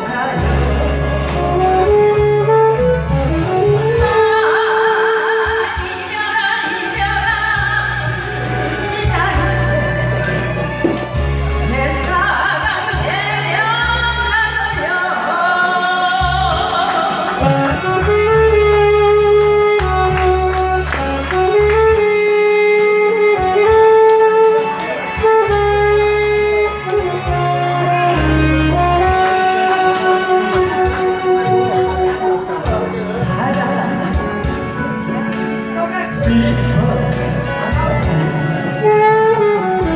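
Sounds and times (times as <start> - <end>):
backing track with pulsing bass: 0.0 - 4.6, 6.9 - 15.3, 16.1 - 39.9
person singing long held notes: 0.0 - 21.9.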